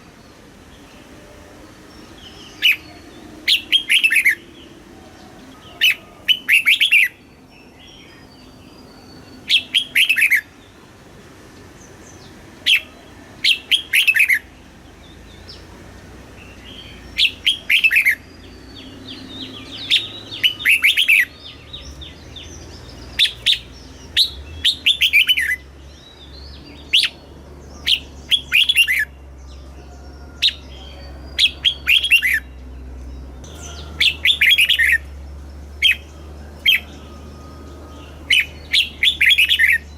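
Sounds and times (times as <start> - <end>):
bird singing quick phrases: 16.4 - 29.1, 37.9 - 39.9.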